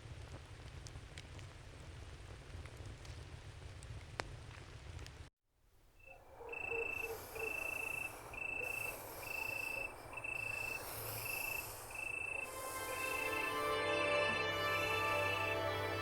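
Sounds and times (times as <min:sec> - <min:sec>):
crickets chirping: 0:06.0 - 0:15.6
soft hiss: 0:06.9 - 0:16.0.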